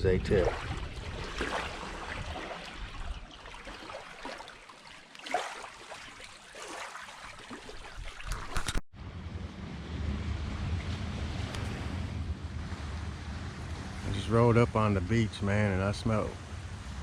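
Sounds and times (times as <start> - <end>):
river water trickling and lapping: 0.0 - 8.8, 10.5 - 17.0
small water splashes: 0.0 - 8.8.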